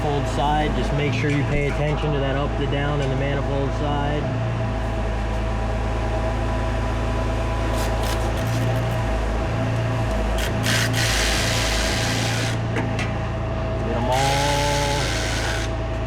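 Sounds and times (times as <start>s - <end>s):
machine hum: 0.0s - 16.0s
hand tools scraping metal: 7.7s - 9.0s, 14.1s - 15.8s.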